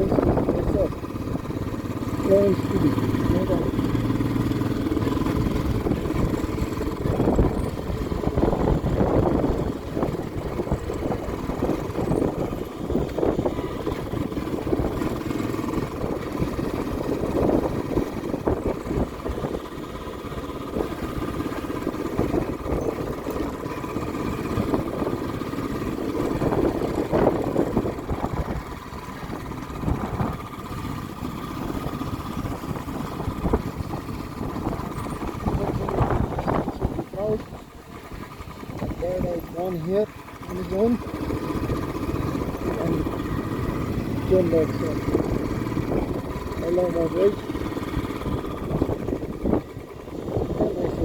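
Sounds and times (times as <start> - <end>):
vehicle engine rumble while driving: 0.0 - 51.0.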